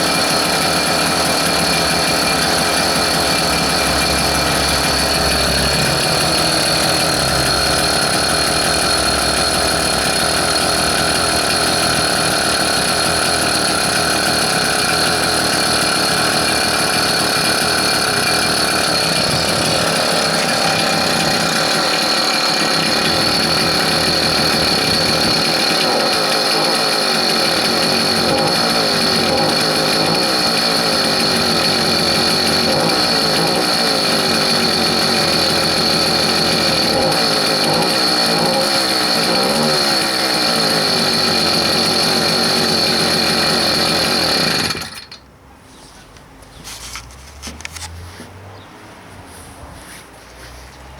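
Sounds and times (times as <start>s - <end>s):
high whine: 0.0s - 26.0s
vehicle engine running steadily: 0.0s - 45.0s.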